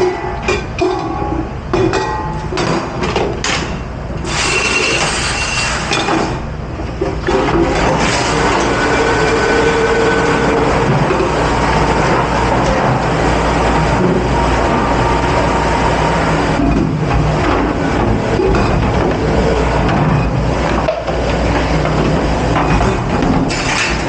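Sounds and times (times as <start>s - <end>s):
dishes and utensils clattering: 0.0s - 3.8s.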